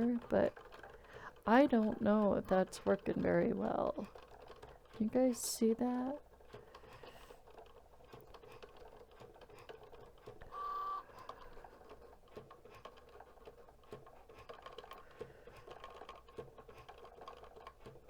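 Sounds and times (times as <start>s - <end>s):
cutting machine motor whir: 10.4s - 11.9s.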